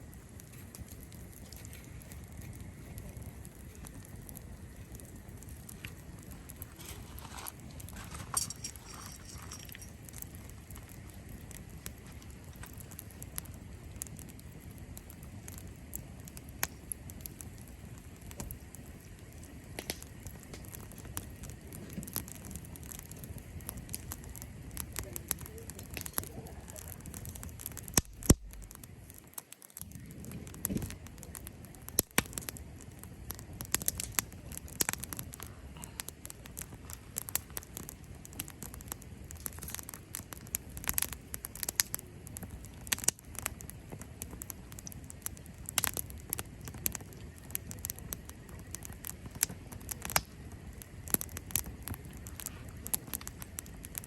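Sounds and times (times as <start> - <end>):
low steady rumble: 0.0 - 29.2
campfire crackling and popping: 0.0 - 54.0.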